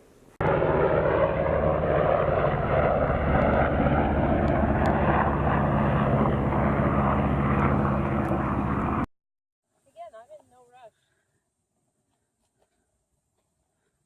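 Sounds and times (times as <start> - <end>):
low hum: 0.0 - 9.1.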